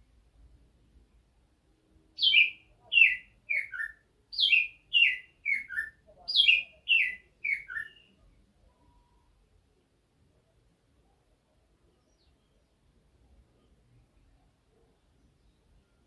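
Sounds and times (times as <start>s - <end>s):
bird singing chirps: 2.2s - 9.3s, 11.9s - 12.9s, 13.5s - 16.0s.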